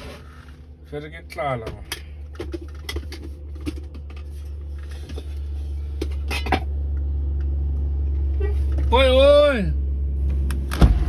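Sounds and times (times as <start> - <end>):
truck engine droning: 0.0 - 11.0
rattles and clicks in cab: 0.9 - 9.1.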